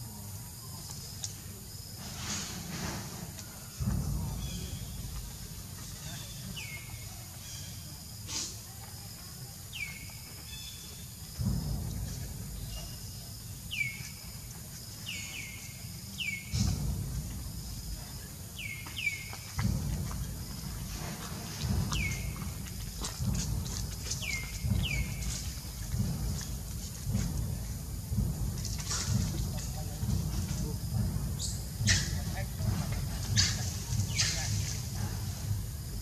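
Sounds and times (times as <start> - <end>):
low rumble: 3.4 - 7.8, 11.2 - 36.0
bird chirping: 3.8 - 8.0, 9.7 - 17.0, 18.0 - 20.7, 21.6 - 26.6, 31.3 - 35.1.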